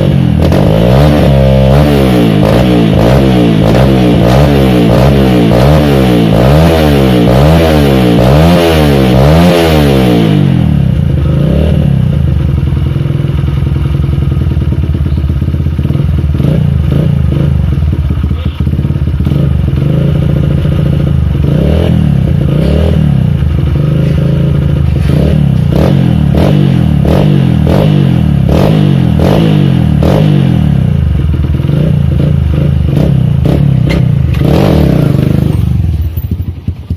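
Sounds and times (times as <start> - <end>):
motorcycle engine revving: 0.0 - 36.9
motorcycle engine idling: 10.2 - 36.9.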